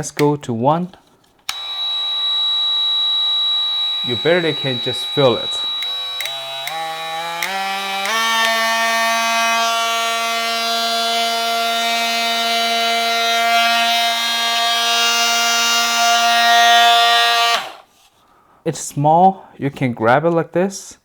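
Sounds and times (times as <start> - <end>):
oscillating multi-tool buzzing whine: 1.5 - 17.9.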